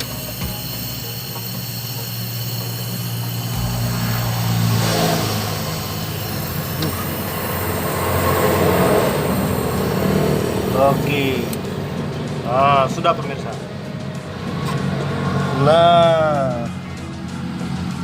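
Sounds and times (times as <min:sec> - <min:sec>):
torch flame hissing: 0:00.0 - 0:12.6
low steady hum: 0:02.9 - 0:11.6.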